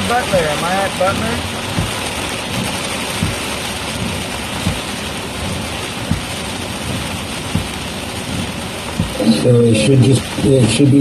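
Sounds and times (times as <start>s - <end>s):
rain and road noise hiss: 0.0s - 11.0s
soft low thump: 1.1s - 9.4s.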